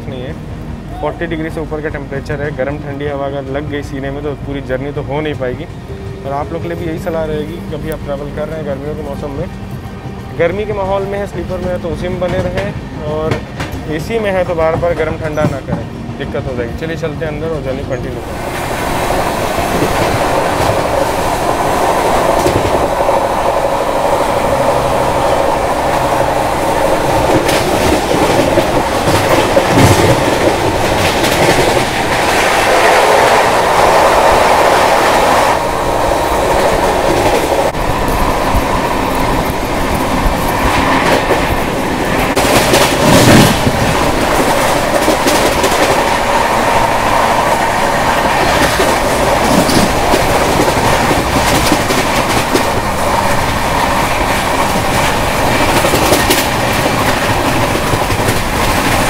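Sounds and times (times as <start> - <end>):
freight train passing: 0.0 - 59.0
train wheels clattering over rails: 11.0 - 16.0, 17.5 - 59.0.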